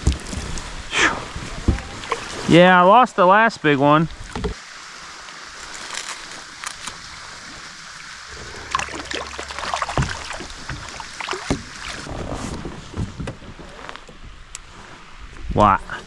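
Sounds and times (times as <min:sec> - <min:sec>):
steady outdoor hiss: 0:00.0 - 0:16.0
handling knocks and clicks in kayak: 0:04.2 - 0:04.6, 0:09.6 - 0:14.8.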